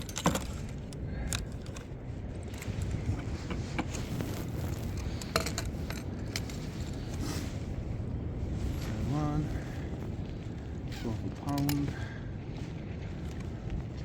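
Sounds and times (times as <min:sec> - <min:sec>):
small clicks and metallic rattles: 0:00.0 - 0:07.2
low rumble of wind: 0:00.0 - 0:14.0.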